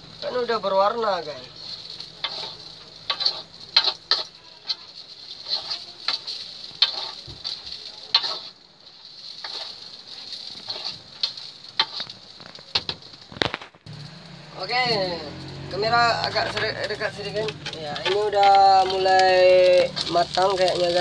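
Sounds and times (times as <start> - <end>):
rice sizzling in a wok: 0.0 - 21.0
spatula scraping a pan: 1.4 - 13.2, 16.2 - 21.0.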